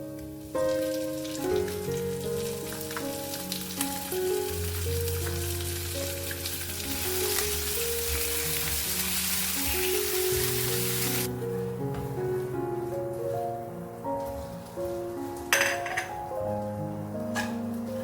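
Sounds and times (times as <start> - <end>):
soft background music: 0.0 - 18.0
food sizzling in hot oil: 0.2 - 11.3.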